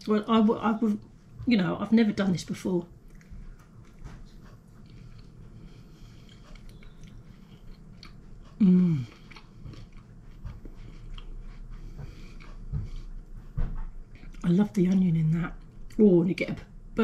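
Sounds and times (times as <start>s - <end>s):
person chewing bread: 2.5s - 16.2s
person humming mmm: 8.5s - 9.4s.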